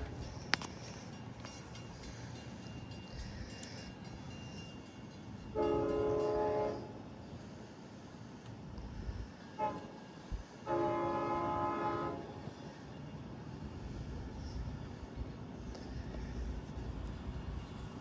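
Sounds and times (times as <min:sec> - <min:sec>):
train horn chord blasts: 0:05.5 - 0:07.0, 0:09.6 - 0:10.0, 0:10.6 - 0:12.6.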